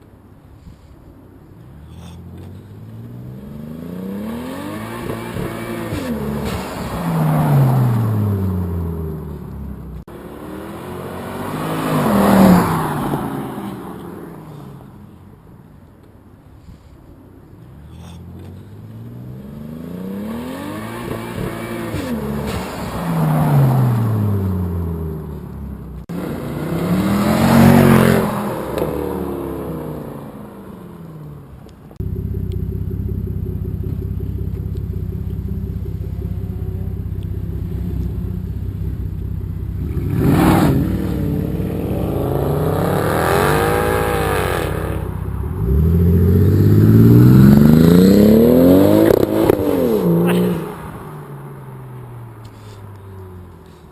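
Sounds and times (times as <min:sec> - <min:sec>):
sports car engines accelerating: 0:01.6 - 0:15.3, 0:17.6 - 0:53.9
engine revving: 0:01.9 - 0:14.0, 0:18.4 - 0:31.1, 0:32.0 - 0:52.9
engine running steadily: 0:32.0 - 0:40.2.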